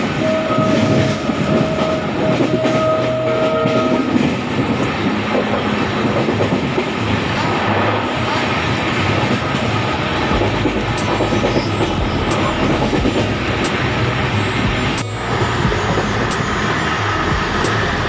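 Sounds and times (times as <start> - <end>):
train horn blasts: 0.0 - 5.6.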